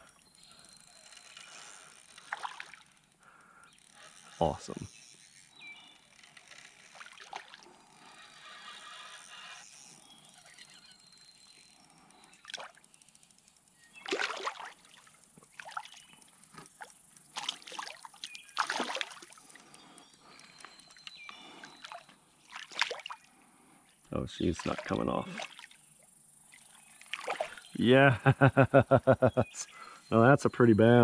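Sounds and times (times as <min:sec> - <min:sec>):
stream trickling: 0:00.0 - 0:27.9
fish splashing in water: 0:02.2 - 0:03.0, 0:06.9 - 0:07.7, 0:12.4 - 0:12.8, 0:14.0 - 0:16.0, 0:16.6 - 0:19.6, 0:21.6 - 0:23.2, 0:24.6 - 0:25.8, 0:26.5 - 0:27.7.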